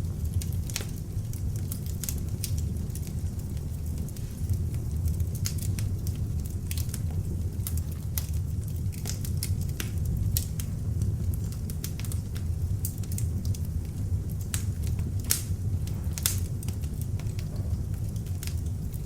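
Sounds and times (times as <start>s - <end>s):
burning wood crackling and popping: 0.0s - 19.0s
flames rumbling: 0.0s - 19.0s.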